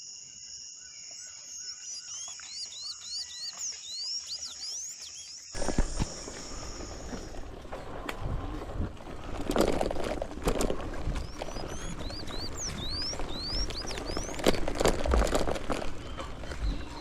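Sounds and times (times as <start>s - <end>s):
bicycle crunching on dirt trail: 1.6s - 17.0s
bird whistling: 11.2s - 14.6s.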